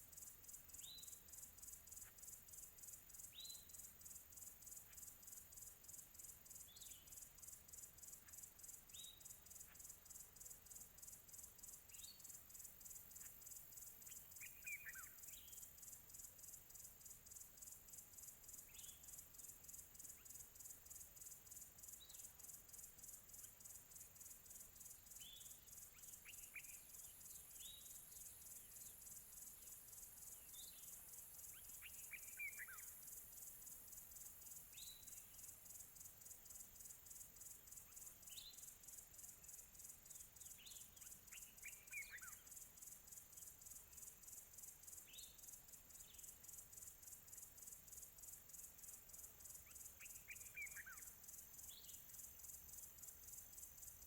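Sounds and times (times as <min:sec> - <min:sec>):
pulsing insect chorus: 0:00.0 - 0:54.0
short bird chirps: 0:49.7 - 0:51.1.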